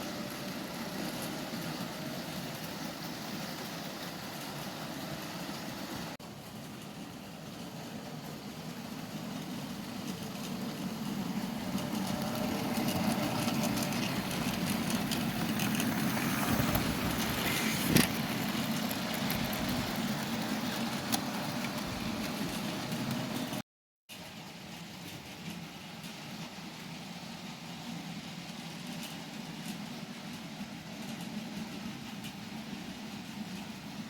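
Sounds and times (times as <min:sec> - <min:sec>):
model train motor hum: 0:00.0 - 0:23.5.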